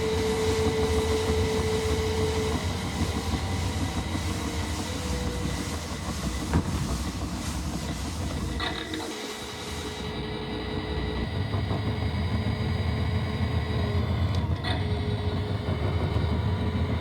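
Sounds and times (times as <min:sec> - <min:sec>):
washing machine knock: 0:00.0 - 0:08.7
faint motor whine: 0:00.0 - 0:17.0
washing machine rumbling: 0:00.0 - 0:17.0.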